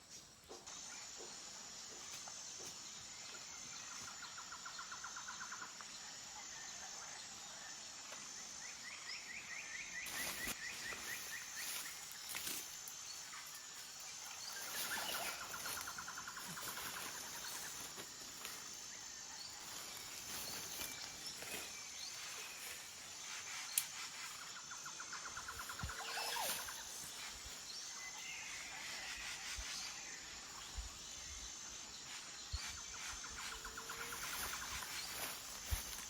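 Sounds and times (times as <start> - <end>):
high insect buzz: 8.8 - 36.0.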